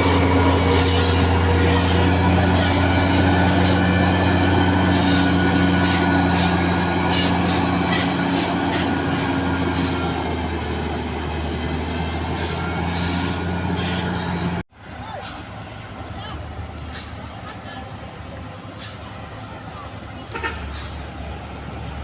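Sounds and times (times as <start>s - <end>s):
diesel truck engine running: 0.0s - 22.0s.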